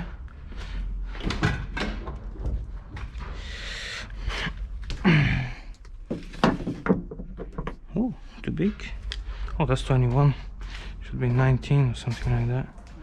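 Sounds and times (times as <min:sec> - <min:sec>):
tools clicking and knocking: 0:05.8 - 0:07.8.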